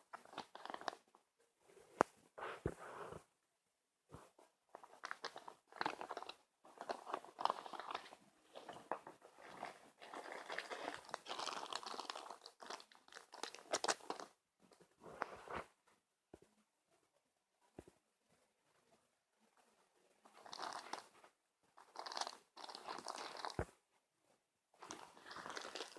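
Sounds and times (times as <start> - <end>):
packaging rustling and crinkling: 0.1 - 1.0, 4.8 - 14.3, 20.4 - 21.1, 21.8 - 23.7, 24.8 - 25.9.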